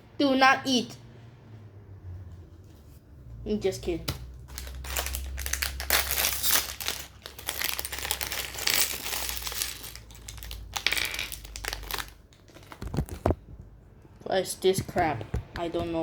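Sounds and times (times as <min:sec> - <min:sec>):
packaging crinkling and rustling: 0:04.4 - 0:13.6.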